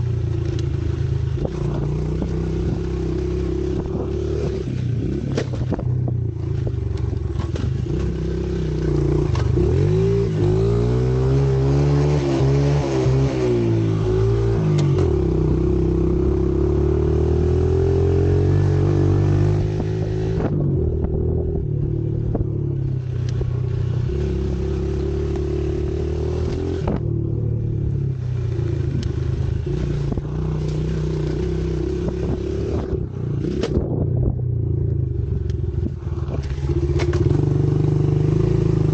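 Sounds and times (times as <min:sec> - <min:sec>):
pit bike engine revving: 0:07.3 - 0:34.1.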